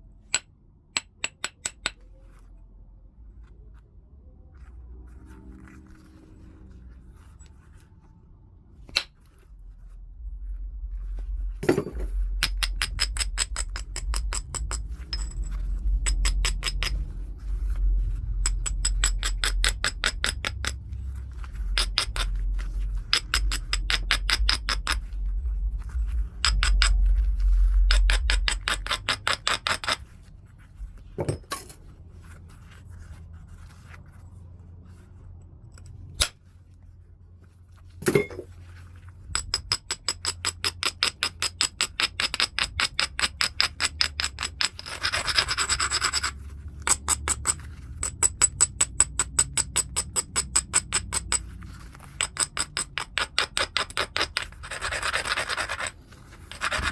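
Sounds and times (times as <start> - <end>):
stone scraping clicks: 11.6 - 17.0, 21.7 - 22.4, 23.0 - 25.0, 26.4 - 27.2, 27.8 - 30.0, 39.4 - 51.4, 52.0 - 55.9
low rumble: 24.6 - 28.8.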